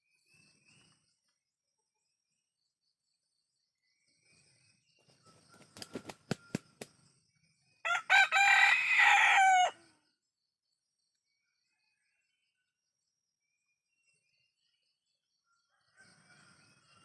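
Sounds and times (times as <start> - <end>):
rooster crowing: 7.8 - 9.9.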